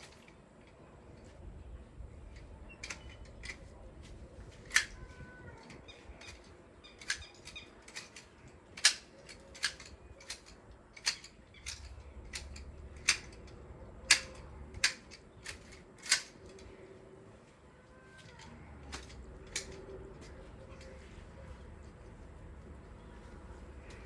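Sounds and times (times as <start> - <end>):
pruning shears snipping branches: 7.0 - 16.6.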